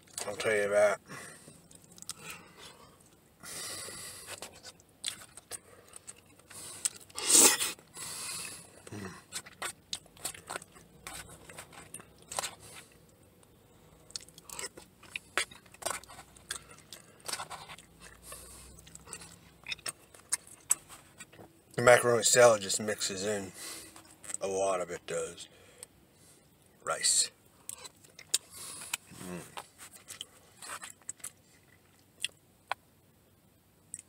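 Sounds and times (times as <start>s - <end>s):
man chewing food: 0.0s - 0.4s, 1.3s - 21.7s, 27.6s - 32.8s.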